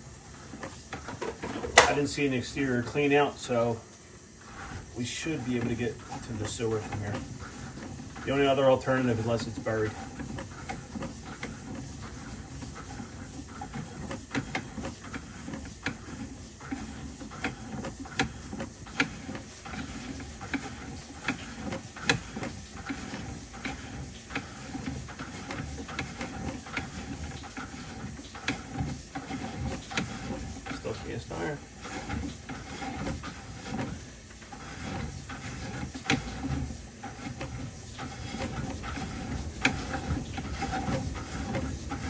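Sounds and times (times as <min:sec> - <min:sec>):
cable reel clicking and rattling: 0:00.6 - 0:03.0, 0:05.0 - 0:42.0.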